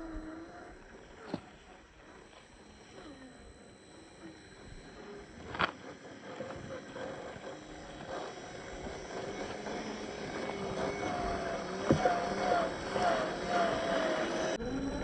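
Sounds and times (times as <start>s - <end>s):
small electric motor whining: 0.0s - 15.0s.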